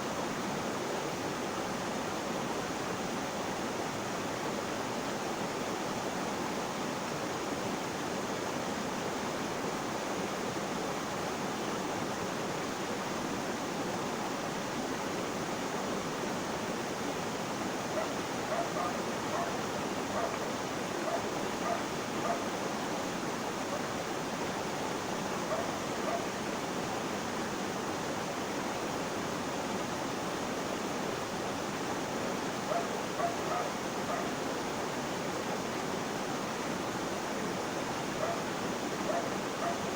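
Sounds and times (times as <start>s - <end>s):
water rushing: 0.0s - 39.9s
faint animal calls: 18.0s - 20.4s, 21.0s - 22.5s, 32.7s - 34.3s, 38.2s - 39.9s.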